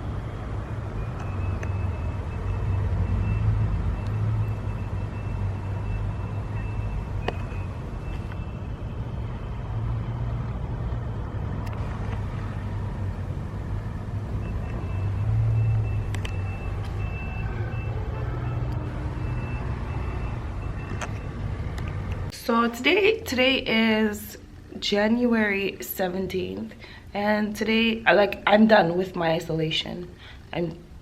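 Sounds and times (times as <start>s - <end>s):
vehicle engine humming: 0.0s - 24.1s.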